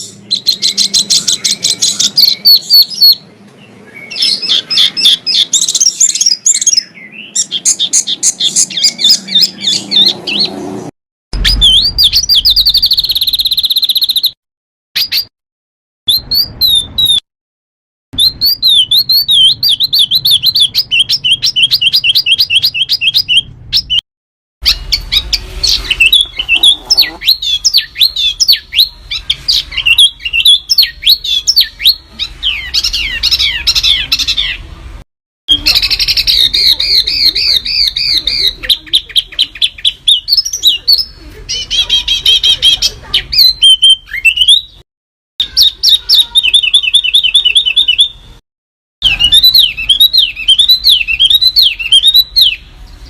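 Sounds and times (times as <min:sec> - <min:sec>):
songbirds trilling and chirping: 0:00.0 - 0:14.4, 0:18.2 - 0:24.0, 0:24.6 - 0:44.8, 0:45.4 - 0:48.4, 0:49.0 - 0:53.0.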